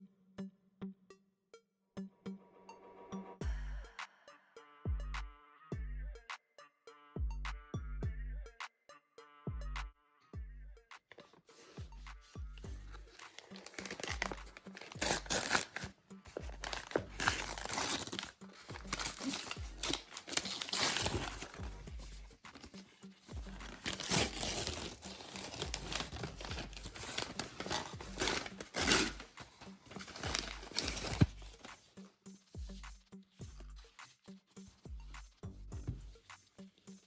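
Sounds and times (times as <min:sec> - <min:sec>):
packaging crinkling and tearing: 0:13.1 - 0:31.9.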